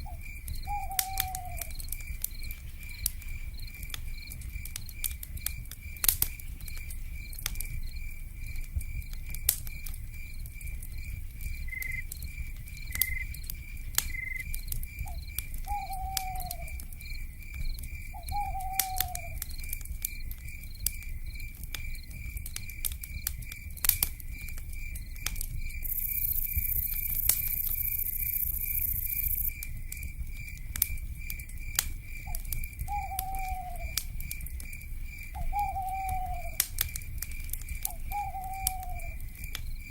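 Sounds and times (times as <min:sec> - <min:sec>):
insect chirping: 0:00.0 - 0:39.9
wood fire crackling: 0:00.0 - 0:39.9
owl calls: 0:00.7 - 0:01.7, 0:15.7 - 0:16.8, 0:18.2 - 0:19.4, 0:32.9 - 0:34.0, 0:35.4 - 0:36.6, 0:37.9 - 0:39.2.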